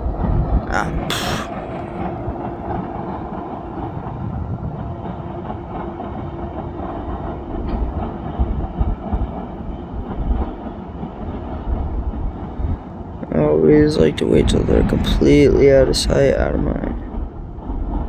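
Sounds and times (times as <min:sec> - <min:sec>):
freight train rumbling: 0:00.0 - 0:18.0
burst of hiss: 0:01.0 - 0:01.5
wheels clacking over rail joints: 0:01.5 - 0:15.2.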